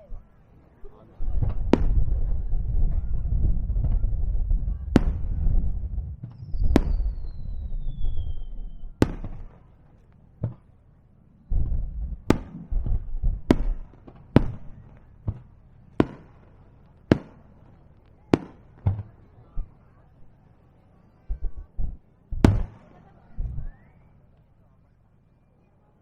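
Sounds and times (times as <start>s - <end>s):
low booming rumble: 1.2s - 9.0s, 11.5s - 13.6s
fireworks cracking: 1.2s - 9.8s, 11.6s - 19.3s, 21.3s - 23.6s.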